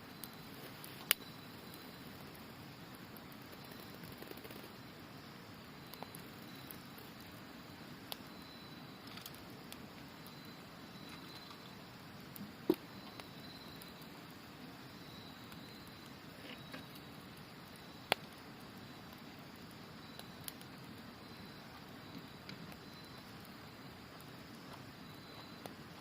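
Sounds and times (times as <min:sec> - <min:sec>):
campfire crackling: 0:00.0 - 0:26.0
high trilling insects: 0:00.0 - 0:26.0
sharp fire pops: 0:00.1 - 0:04.8, 0:12.2 - 0:14.0, 0:15.5 - 0:21.0.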